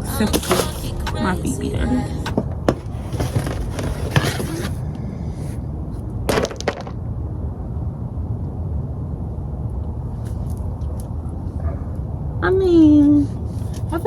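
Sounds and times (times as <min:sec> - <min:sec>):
steady low rumble: 0:00.0 - 0:14.0
car floor mats rustling: 0:02.6 - 0:05.5.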